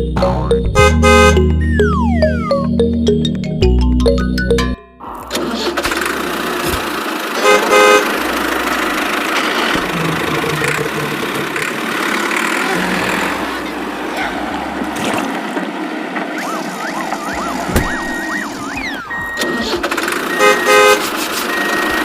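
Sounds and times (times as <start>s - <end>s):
vehicle noise: 0.0s - 22.0s
horn tooting: 0.8s - 1.6s, 7.4s - 14.9s, 17.4s - 22.0s.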